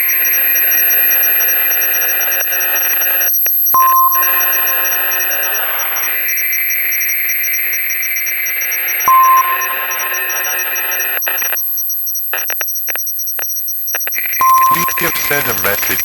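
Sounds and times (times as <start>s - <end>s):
fast high pips: 14.2s - 16.0s
short electronic beep: 14.3s - 16.0s.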